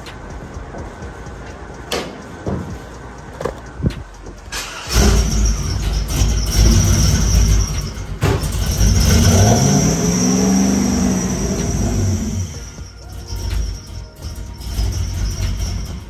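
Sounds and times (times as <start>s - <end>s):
high-pitched whine: 3.8s - 16.0s
engine starting and revving: 4.5s - 16.0s.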